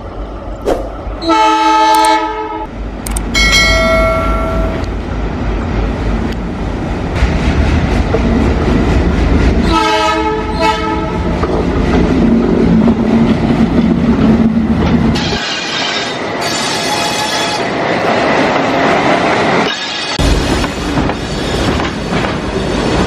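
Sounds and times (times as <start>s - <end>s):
train wheels rumbling on rails: 0.0s - 23.0s
train horn blasts: 1.2s - 2.7s, 9.6s - 11.2s.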